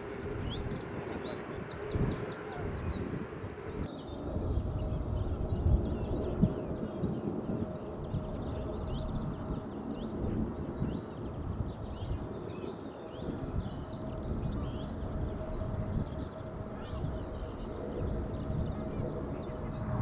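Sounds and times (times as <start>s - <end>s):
small birds chirping: 0.0s - 4.2s
steady low rumble: 14.9s - 20.0s.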